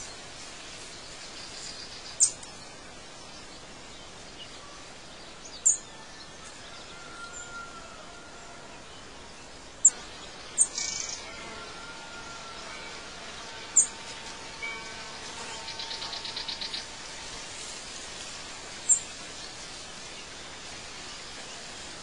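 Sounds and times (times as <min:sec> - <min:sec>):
outdoor ambience hiss: 0:00.0 - 0:22.0
sharp high bird chirps: 0:10.6 - 0:11.3.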